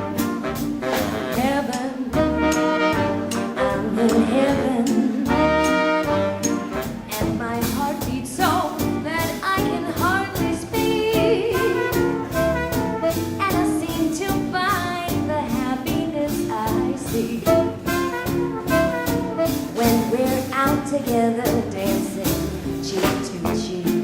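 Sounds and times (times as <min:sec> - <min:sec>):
swing band playing: 0:00.0 - 0:24.0.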